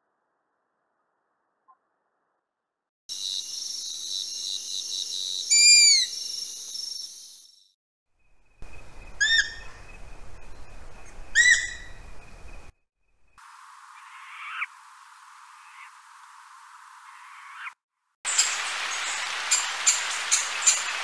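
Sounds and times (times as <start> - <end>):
owl calls: 5.5 - 6.1, 9.2 - 9.7, 11.3 - 12.0, 14.0 - 14.7
high background hiss: 8.3 - 12.7, 13.3 - 17.5, 18.3 - 21.0.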